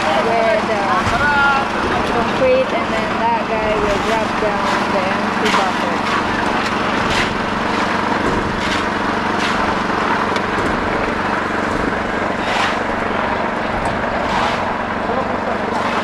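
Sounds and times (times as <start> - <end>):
concrete mixer engine running: 0.0 - 16.0
shovels scraping concrete: 3.7 - 16.0.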